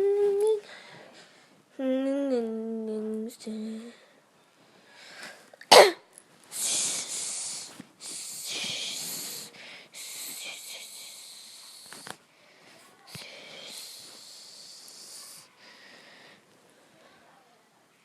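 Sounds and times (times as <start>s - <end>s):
person hissing breathily: 6.5s - 12.2s, 13.2s - 16.4s.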